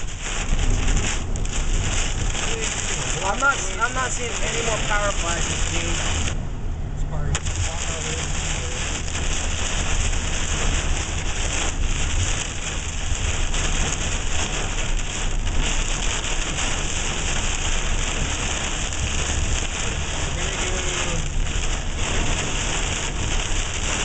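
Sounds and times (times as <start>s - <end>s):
heavy rain pouring: 0.0s - 24.0s
low rumble: 0.0s - 24.0s.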